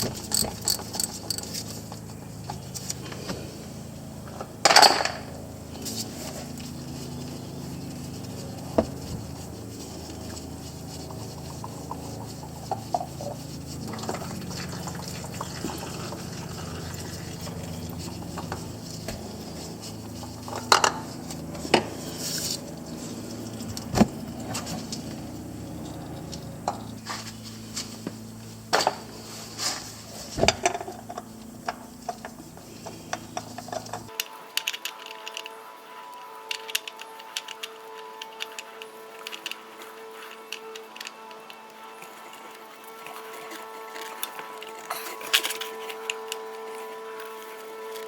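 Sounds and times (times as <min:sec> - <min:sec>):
steady low hum: 0:00.0 - 0:34.2.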